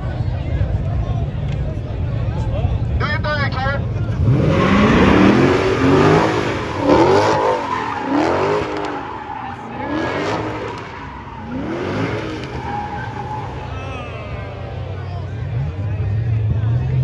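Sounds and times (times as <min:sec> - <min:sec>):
car engine revving: 0:00.0 - 0:17.0
tyres squealing: 0:04.2 - 0:14.9.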